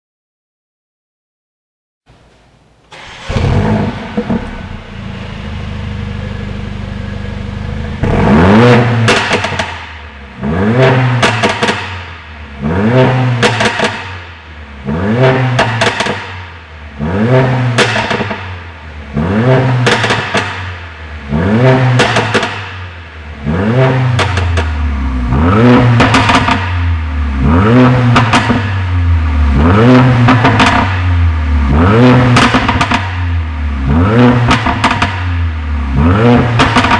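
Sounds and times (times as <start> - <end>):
car engine idling and revving: 2.9 - 36.9
exhaust popping and crackling: 7.8 - 14.5, 15.2 - 16.6, 17.4 - 20.8, 21.8 - 22.8, 23.7 - 24.9, 25.6 - 36.9.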